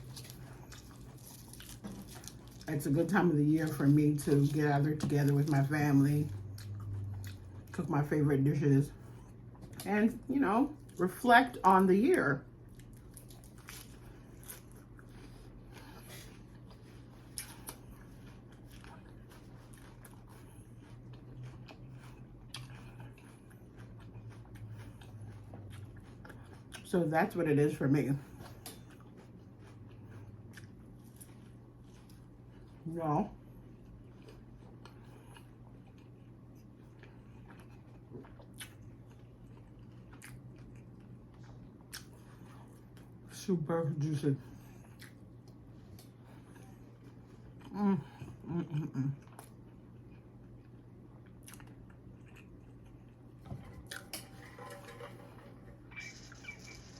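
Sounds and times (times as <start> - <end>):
person chewing: 0.0 - 2.7, 6.4 - 7.8, 12.6 - 26.9, 28.3 - 32.8, 33.7 - 43.2, 44.6 - 56.9
low steady hum: 0.0 - 56.9.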